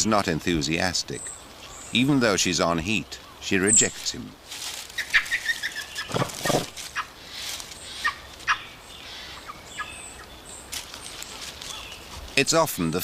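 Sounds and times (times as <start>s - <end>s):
forest ambience: 0.0s - 13.0s
sharp chirp-like animal calls: 5.0s - 10.2s.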